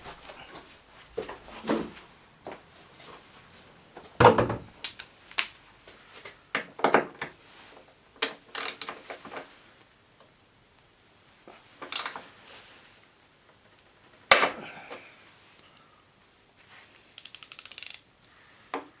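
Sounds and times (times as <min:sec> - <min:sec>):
tools and parts knocking and rattling: 0:04.2 - 0:05.5.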